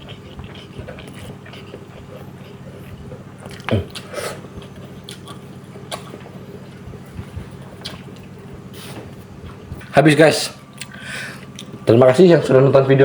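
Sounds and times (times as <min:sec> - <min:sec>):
person chewing: 0:00.0 - 0:09.8, 0:10.7 - 0:11.8
steady low hum: 0:00.0 - 0:13.0
mouth smacks and clicks: 0:03.4 - 0:06.2.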